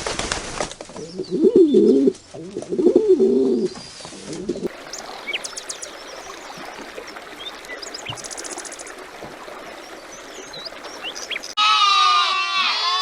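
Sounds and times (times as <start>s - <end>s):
small birds chirping: 1.0s - 2.5s, 3.4s - 11.6s.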